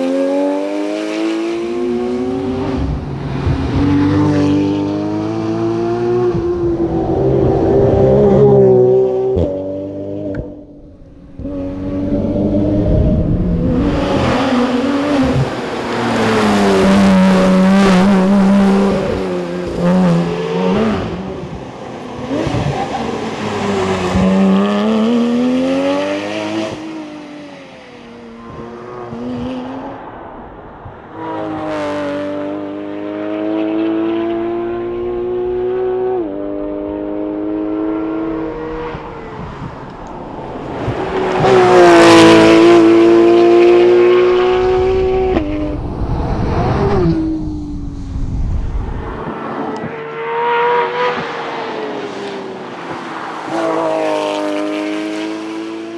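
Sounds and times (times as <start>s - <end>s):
car engine revving hard: 11.4s - 27.1s, 40.7s - 45.7s.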